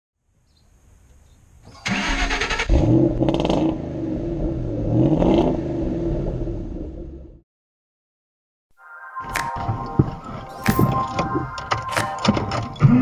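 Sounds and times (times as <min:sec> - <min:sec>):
car starter cranking: 0:01.8 - 0:02.7
car engine revving: 0:02.0 - 0:07.0.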